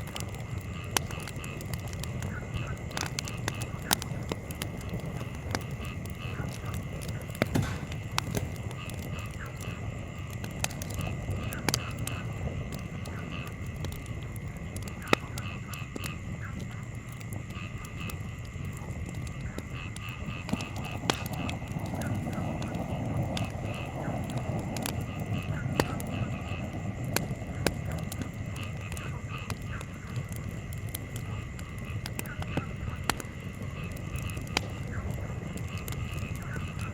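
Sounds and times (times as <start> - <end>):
campfire crackling and popping: 0.0 - 36.9
low rumble of fire: 0.0 - 36.9.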